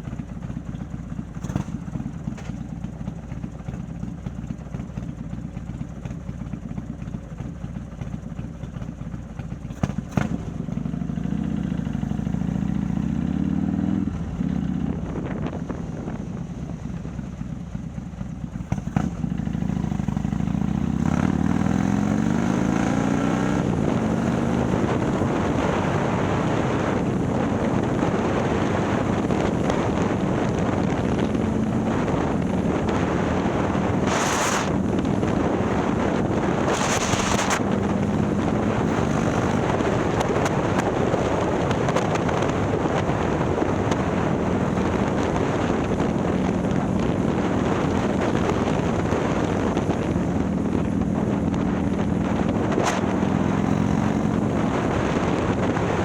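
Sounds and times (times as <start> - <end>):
motorcycle engine rumbling: 0.0 - 56.0
wind rushing past: 19.7 - 56.0.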